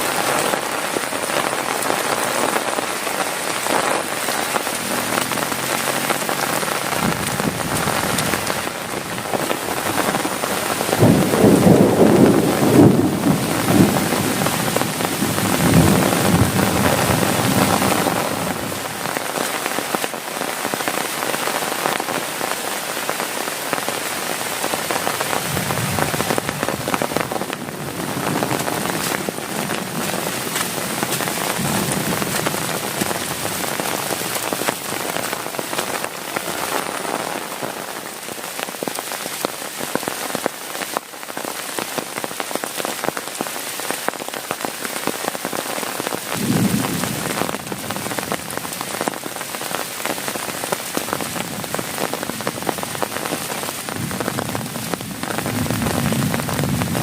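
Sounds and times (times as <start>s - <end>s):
heavy rain on a tent: 0.0s - 57.0s.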